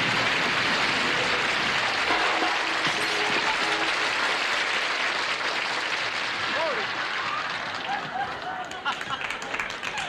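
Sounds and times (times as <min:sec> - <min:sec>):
audience applauding: 0:00.0 - 0:10.0
short band notes: 0:01.2 - 0:06.2.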